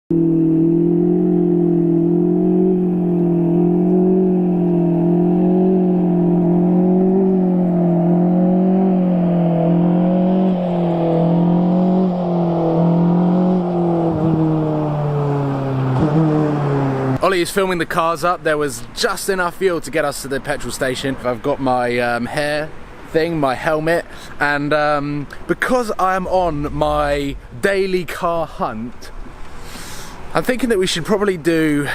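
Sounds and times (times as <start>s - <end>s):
car engine droning: 0.1s - 19.3s, 24.1s - 30.6s.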